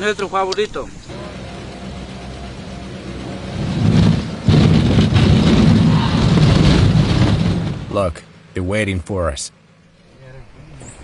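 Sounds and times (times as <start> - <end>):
propeller plane engine humming: 0.9 - 8.6.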